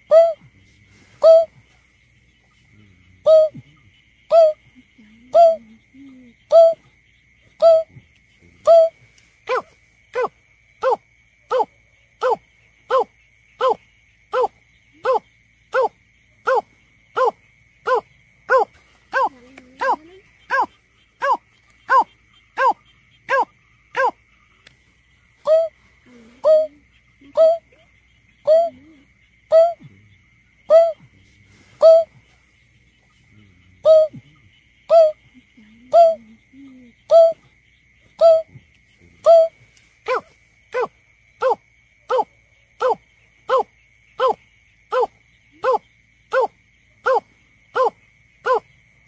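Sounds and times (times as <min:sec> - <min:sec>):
bird hooting calls: 0:01.2 - 0:01.6, 0:03.2 - 0:03.7, 0:07.6 - 0:07.9, 0:17.9 - 0:24.2, 0:25.4 - 0:27.8, 0:28.4 - 0:29.9, 0:30.7 - 0:31.0, 0:31.8 - 0:32.1, 0:33.8 - 0:35.2
bird low hooting calls: 0:25.2 - 0:37.5.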